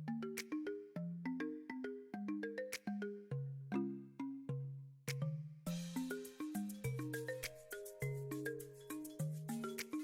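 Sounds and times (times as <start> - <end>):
light bell-like tune: 5.7 - 10.0.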